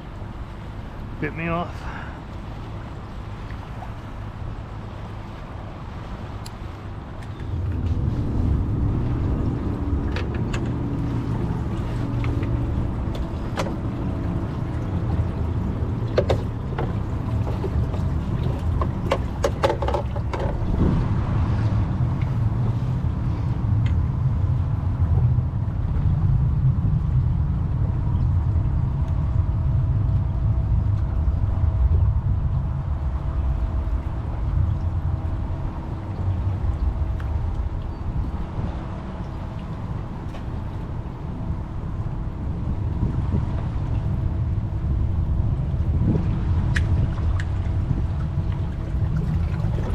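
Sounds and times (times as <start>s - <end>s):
low rumble on water: 0.0s - 49.9s
sharp clicks and knocks: 16.1s - 17.6s, 18.7s - 20.6s.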